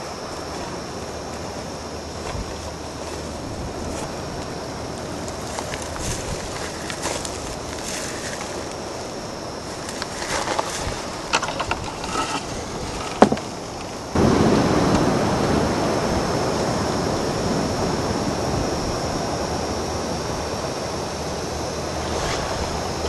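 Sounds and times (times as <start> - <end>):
loud even rushing noise: 21.6 - 23.0.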